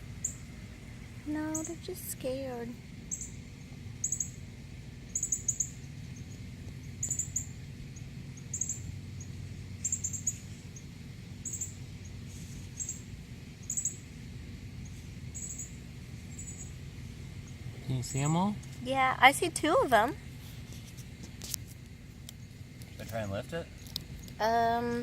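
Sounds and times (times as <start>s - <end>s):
low background hum: 0.0s - 25.0s
bird chirping: 3.1s - 4.4s, 5.1s - 7.6s, 8.4s - 14.1s, 14.8s - 16.8s.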